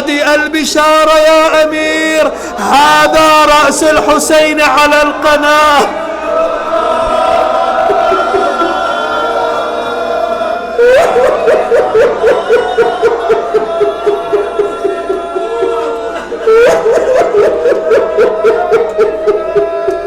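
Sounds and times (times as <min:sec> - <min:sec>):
man sobbing: 0:07.0 - 0:09.5, 0:10.8 - 0:20.0
man wailing in mourning: 0:07.0 - 0:09.5, 0:10.8 - 0:20.0.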